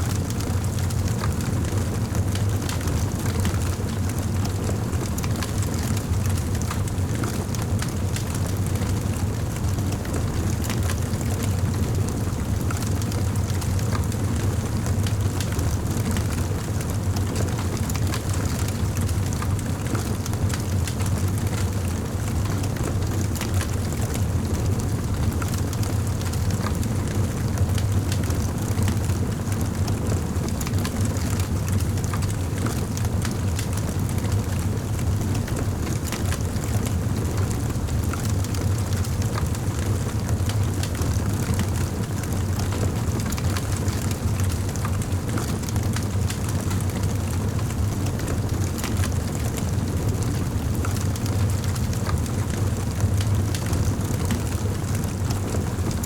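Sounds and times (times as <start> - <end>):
wood fire crackling: 15.0 - 56.0.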